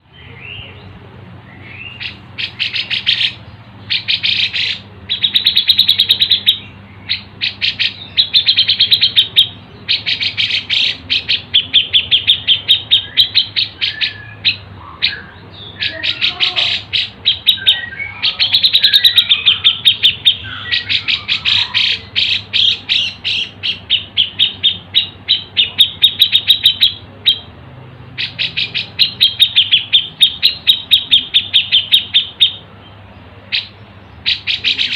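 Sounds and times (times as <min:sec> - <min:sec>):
birds chirping and trilling: 0:00.0 - 0:34.9
faint steady hum: 0:00.0 - 0:34.9.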